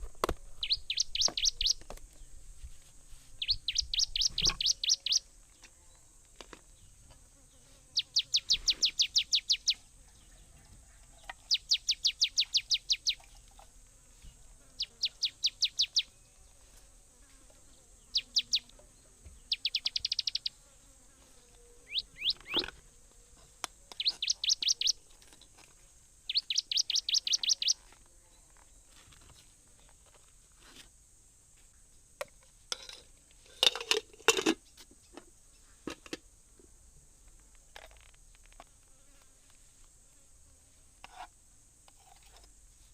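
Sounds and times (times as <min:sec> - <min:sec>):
songbird chirping: 0:00.5 - 0:25.6, 0:26.2 - 0:30.1
high insect drone: 0:11.4 - 0:42.9.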